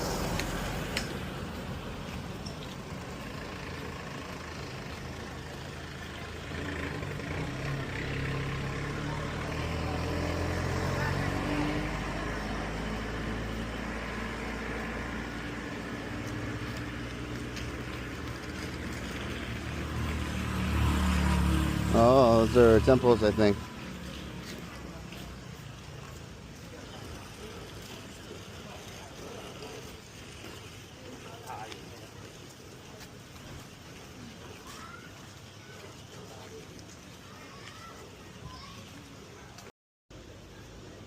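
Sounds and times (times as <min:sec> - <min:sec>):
vehicle engine running: 0:00.0 - 0:34.2
road noise: 0:00.0 - 0:41.0.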